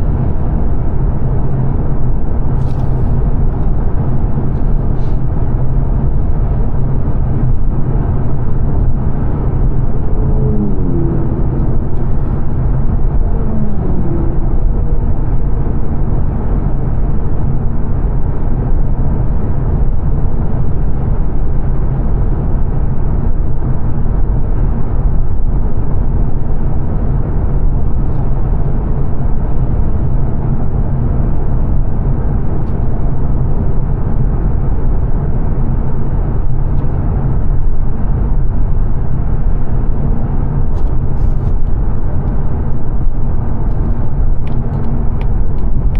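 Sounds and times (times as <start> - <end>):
in-cabin road noise: 0.0 - 45.9
falling pitched tone: 9.3 - 15.8.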